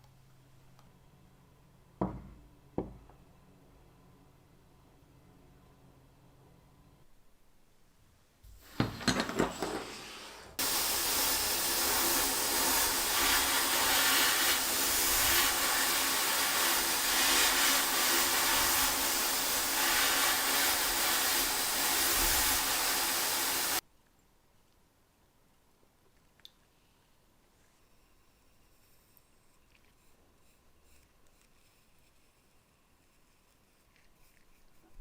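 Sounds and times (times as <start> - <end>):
workshop machine hissing: 8.6 - 23.8.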